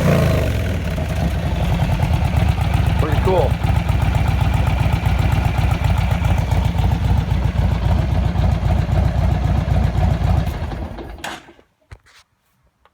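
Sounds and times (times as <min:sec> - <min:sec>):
vehicle engine idling: 0:00.0 - 0:11.2.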